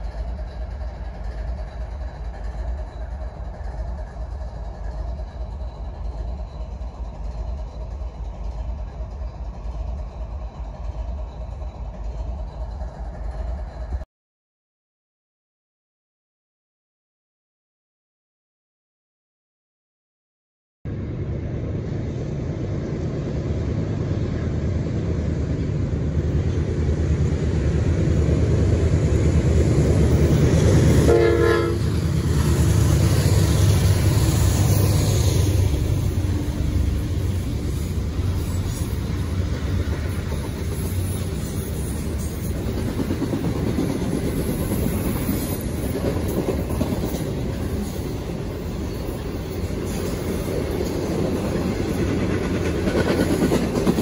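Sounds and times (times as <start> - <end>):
diesel locomotive engine rumble: 0.0 - 14.1, 20.9 - 54.0
locomotive horn blast: 30.9 - 32.0.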